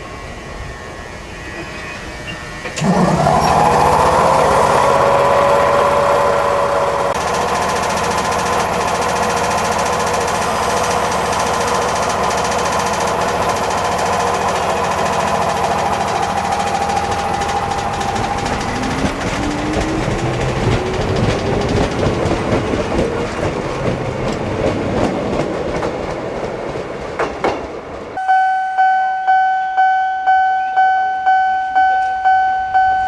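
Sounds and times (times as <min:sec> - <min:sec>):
electric air compressor chugging: 0:02.8 - 0:24.0.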